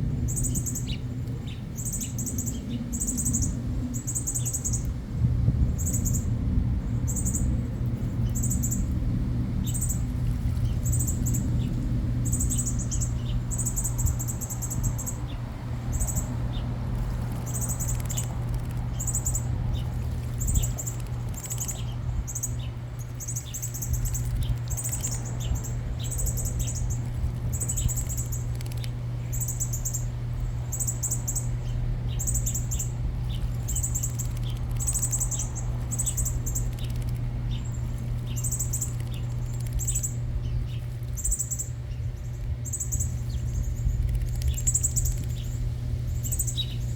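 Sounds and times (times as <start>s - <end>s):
small birds chirping: 0.0s - 5.0s, 5.6s - 46.9s
steady low hum: 0.0s - 46.9s.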